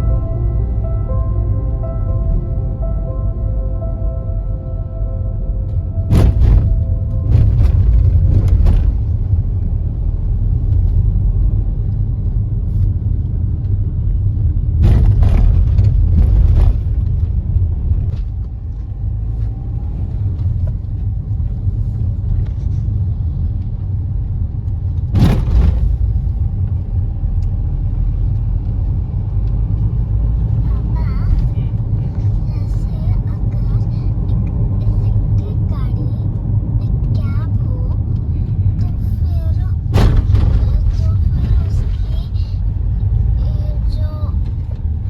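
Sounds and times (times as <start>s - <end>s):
car road rumble: 0.0s - 45.0s
car bumps: 6.0s - 9.3s, 14.7s - 18.4s, 25.0s - 26.4s, 39.8s - 42.4s.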